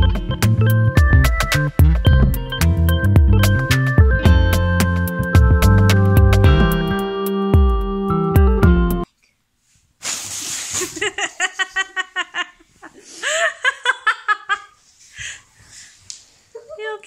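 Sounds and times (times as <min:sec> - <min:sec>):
short hissing burst: 0:10.0 - 0:11.0.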